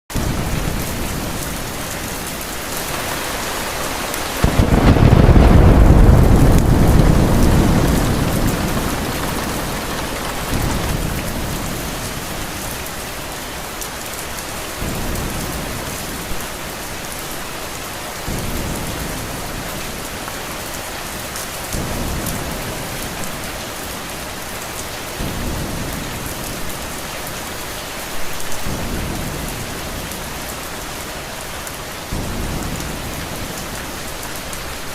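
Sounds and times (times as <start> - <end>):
thunderclap: 0.1 - 13.2
heavy rain: 0.1 - 34.9
low rumbles of thunder: 0.2 - 12.8.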